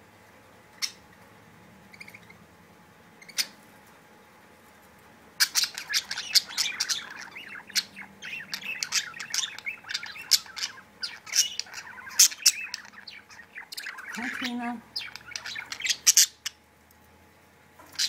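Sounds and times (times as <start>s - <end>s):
budgerigars chattering and squawking: 1.9s - 2.4s, 5.4s - 16.6s.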